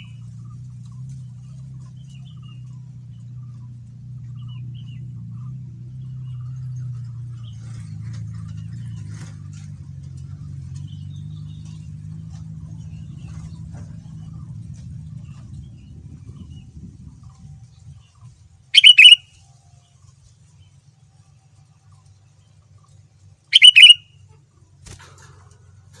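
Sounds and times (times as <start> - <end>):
bird chirping: 0.0 - 0.2, 18.8 - 19.2, 23.5 - 24.0.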